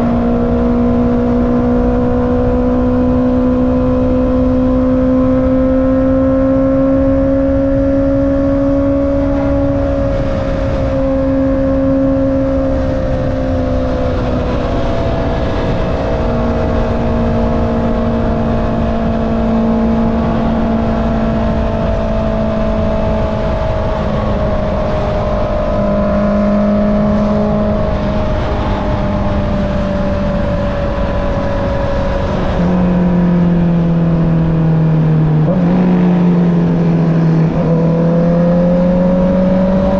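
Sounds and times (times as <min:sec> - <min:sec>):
motorcycle engine cruising: 0:00.0 - 0:39.9
wind rushing: 0:23.6 - 0:30.6, 0:36.1 - 0:39.9.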